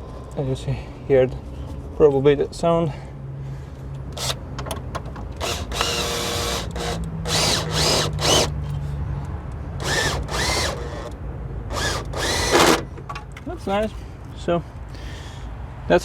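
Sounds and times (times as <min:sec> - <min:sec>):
metal grinding and squeaking: 0:11.7 - 0:13.9.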